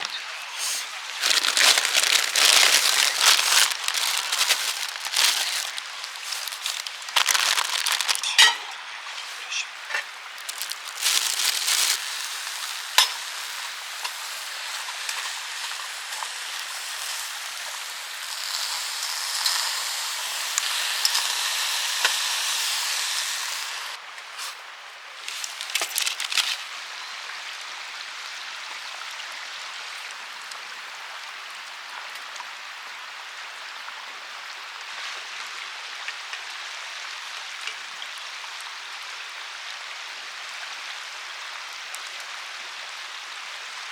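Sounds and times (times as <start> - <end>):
campfire crackling and popping: 0.0 - 8.5, 10.3 - 14.3.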